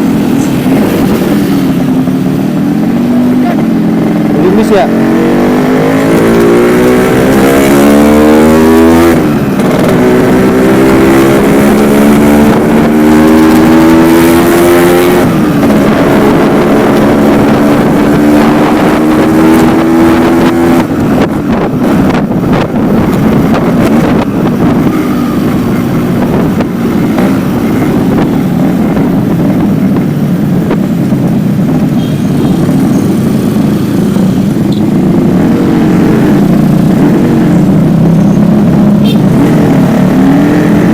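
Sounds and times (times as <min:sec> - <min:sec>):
motorcycle accelerating: 0:00.0 - 0:40.9.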